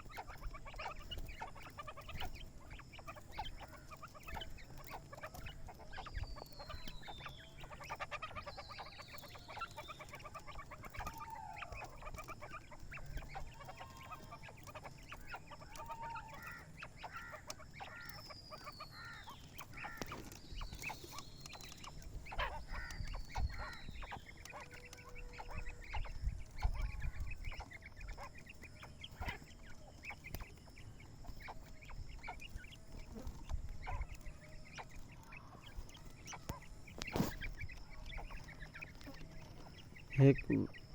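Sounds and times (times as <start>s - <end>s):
quail clucking chirps: 0.0s - 40.9s.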